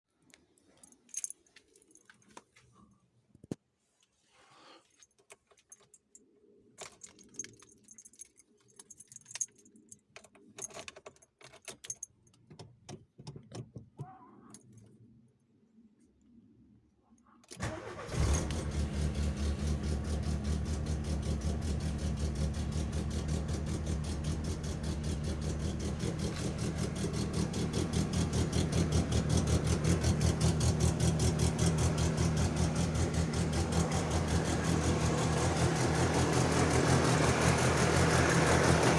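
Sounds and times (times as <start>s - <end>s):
light clicks and rattles: 4.8s - 15.0s
car engine cranking and idling: 17.6s - 38.9s.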